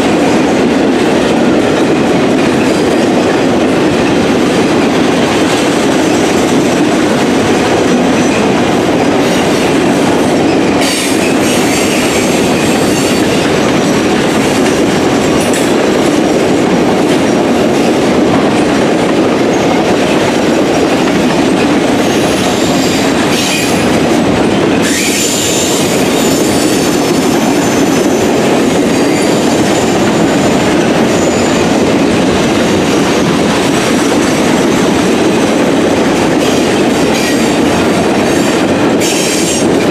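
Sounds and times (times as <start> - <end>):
train wheels rumbling on track: 0.0 - 39.9
high-pitched wheel squeal: 24.8 - 26.9.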